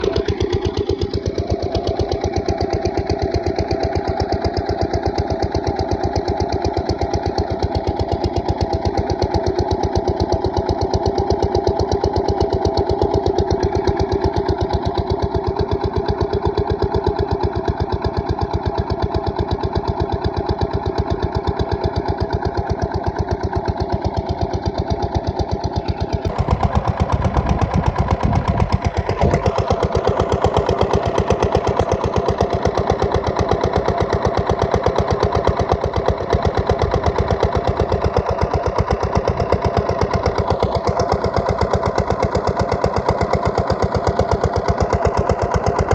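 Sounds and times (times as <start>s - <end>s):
diesel pump engine thudding: 25.5s - 35.1s.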